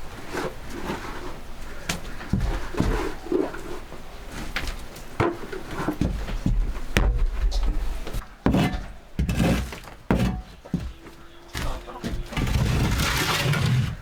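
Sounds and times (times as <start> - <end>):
knocks and thuds: 6.0 - 7.9.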